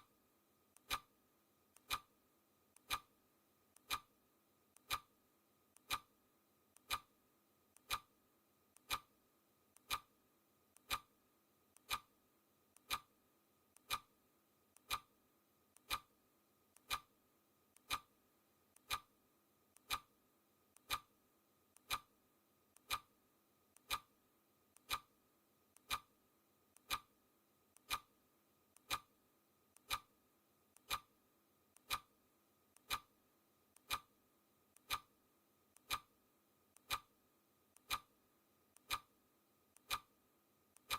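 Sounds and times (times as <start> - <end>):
clock ticking: 0.8 - 1.1, 1.7 - 2.1, 2.7 - 3.1, 3.7 - 4.1, 4.7 - 5.1, 5.7 - 6.1, 6.7 - 7.1, 7.7 - 8.1, 8.7 - 9.1, 9.7 - 10.1, 10.7 - 11.1, 11.7 - 12.1, 12.7 - 13.1, 13.7 - 14.1, 14.7 - 15.1, 15.7 - 16.1, 16.7 - 17.1, 17.7 - 18.1, 18.7 - 19.1, 19.7 - 20.1, 20.7 - 21.1, 21.7 - 22.1, 22.7 - 23.1, 23.7 - 24.1, 24.7 - 25.1, 25.7 - 26.1, 26.8 - 28.1, 28.8 - 29.1, 29.8 - 30.1, 30.8 - 31.1, 31.8 - 32.1, 32.8 - 34.2, 34.8 - 35.2, 35.8 - 37.1, 37.8 - 38.2, 38.8 - 39.1, 39.8 - 40.2.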